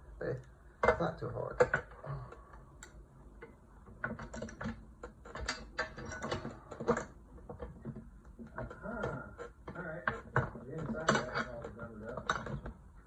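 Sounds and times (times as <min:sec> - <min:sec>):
metal tools clicking and rattling: 0:04.0 - 0:12.8.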